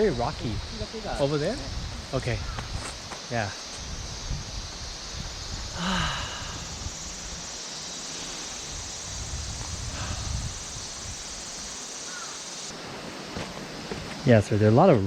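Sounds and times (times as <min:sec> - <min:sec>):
cicadas droning: 0:00.0 - 0:15.0
footsteps on loose stones: 0:13.3 - 0:14.3.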